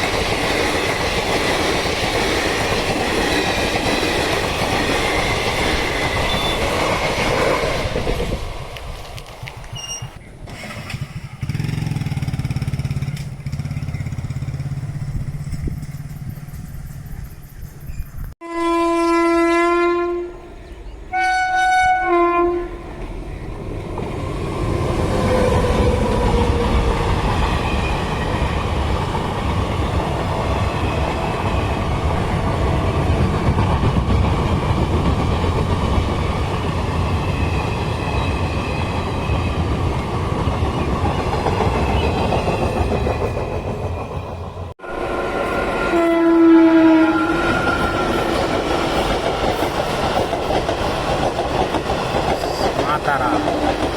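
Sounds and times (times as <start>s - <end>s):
train wheels rumbling on track: 0.0s - 18.4s, 22.6s - 53.9s
train horn blasts: 18.4s - 23.0s, 44.8s - 48.3s.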